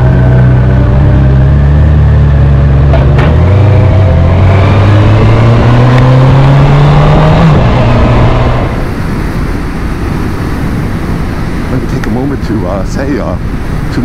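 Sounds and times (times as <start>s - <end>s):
motorcycle engine accelerating: 0.0s - 9.3s.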